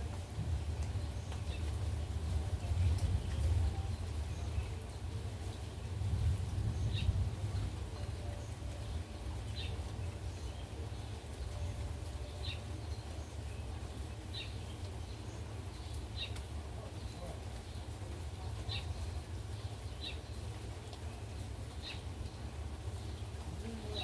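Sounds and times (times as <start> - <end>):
gusty wind rumble: 0.0 - 10.3
rain hiss: 0.0 - 24.0
bird chirping: 6.7 - 18.0.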